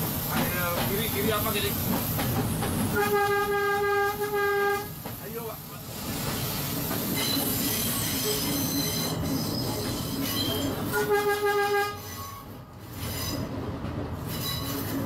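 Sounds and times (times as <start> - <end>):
train horn blast: 2.9 - 5.0, 10.9 - 12.2
train wheels squealing: 6.4 - 11.0, 12.0 - 13.6, 14.2 - 15.0.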